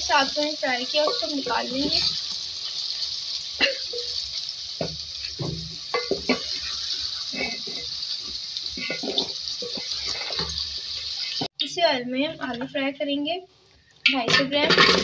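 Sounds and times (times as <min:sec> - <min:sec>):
vegetables sizzling in hot oil: 0:00.0 - 0:11.6, 0:13.9 - 0:15.0
wooden spoon scraping pot: 0:05.3 - 0:11.4.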